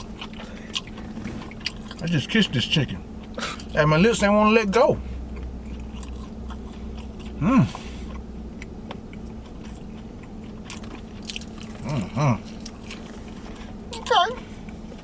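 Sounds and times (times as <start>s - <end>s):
person chewing crunchy food: 0.0s - 2.2s, 5.2s - 15.0s
steady low hum: 0.0s - 15.0s
person humming mm: 7.4s - 7.8s.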